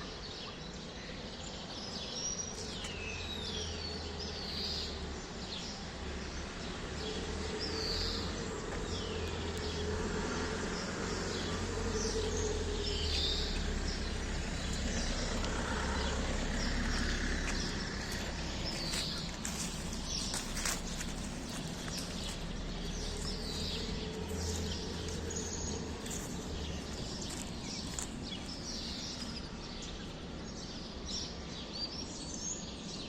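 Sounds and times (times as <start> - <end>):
sparrows chirping: 0.0 - 33.0
steady low rumble: 7.6 - 30.4.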